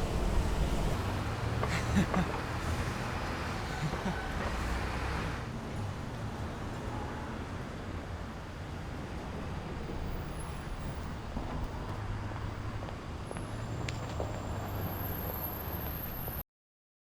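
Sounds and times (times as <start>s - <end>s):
low rumble: 0.0s - 1.3s.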